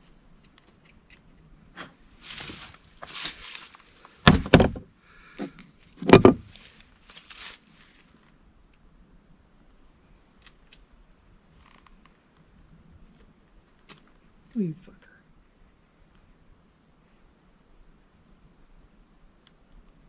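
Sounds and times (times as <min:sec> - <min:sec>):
scraping rustles: 0:01.8 - 0:04.8, 0:05.8 - 0:08.2
loud knocks: 0:04.3 - 0:04.9, 0:06.0 - 0:06.5.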